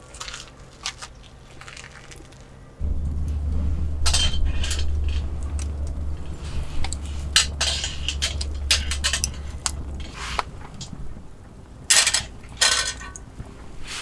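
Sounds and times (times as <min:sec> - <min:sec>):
metal utensils scraping cookware: 0:02.9 - 0:11.0, 0:11.9 - 0:13.2.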